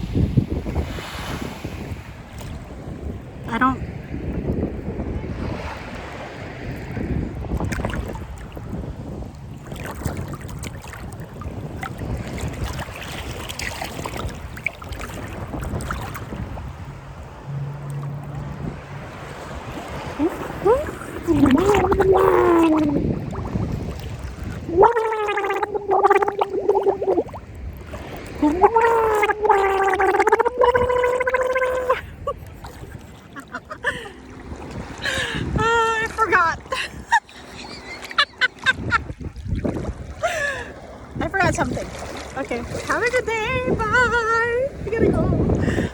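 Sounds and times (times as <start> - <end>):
sea water sloshing and splashing: 0.0 - 45.9
wind buffeting microphone: 0.0 - 45.9
low steady hum: 15.6 - 38.7
woman singing a long note: 28.4 - 32.0.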